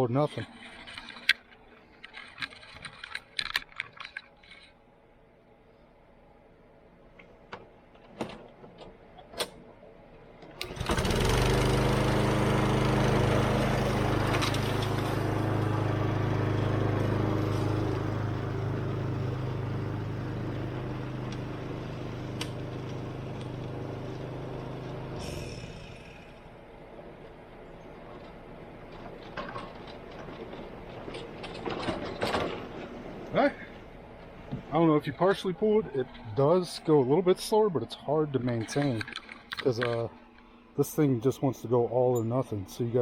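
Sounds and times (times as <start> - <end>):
lawn mower engine running: 10.6 - 36.8.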